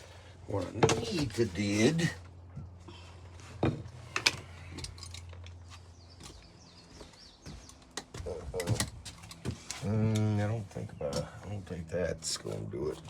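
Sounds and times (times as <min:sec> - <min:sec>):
steady low hum: 0:00.0 - 0:13.0
hand tools clicking and clinking: 0:04.1 - 0:05.6.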